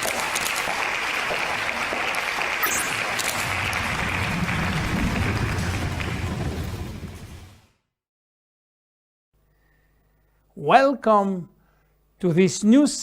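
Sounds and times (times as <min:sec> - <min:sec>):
applause-like noise: 0:00.0 - 0:07.5
low rumble: 0:03.2 - 0:07.7.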